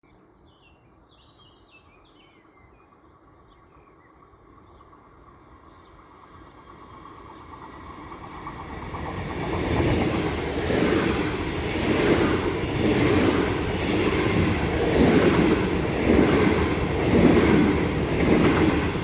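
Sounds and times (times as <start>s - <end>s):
train rumbling on rails: 4.2s - 19.0s.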